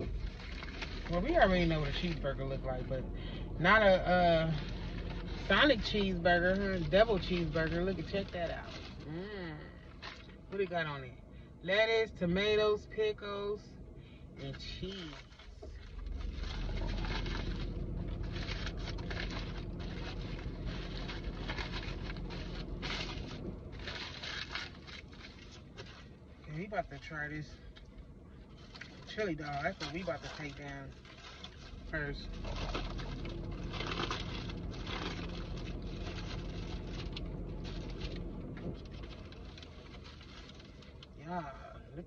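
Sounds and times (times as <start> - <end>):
paper wrappers rustling: 0.0 - 2.8, 3.7 - 9.2, 9.9 - 10.5, 14.6 - 27.9, 28.5 - 41.2
car engine idling: 0.0 - 42.0
steady low hum: 0.0 - 42.0
food packaging crinkling: 0.1 - 1.1, 15.0 - 26.1, 29.7 - 41.1.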